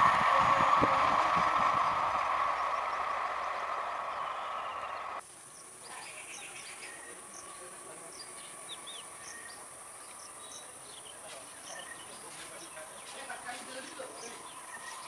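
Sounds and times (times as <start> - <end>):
train coaches running on rails: 0.0 - 5.2, 8.5 - 15.0
bird chirps: 2.6 - 5.2, 5.8 - 13.2, 14.0 - 15.0.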